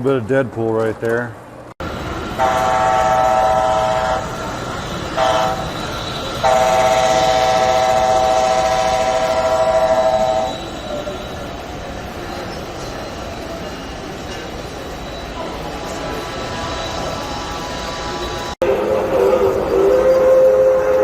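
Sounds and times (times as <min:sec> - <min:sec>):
hall murmur: 0:01.8 - 0:21.0
multi-tone train horn: 0:02.3 - 0:11.4, 0:17.9 - 0:21.0.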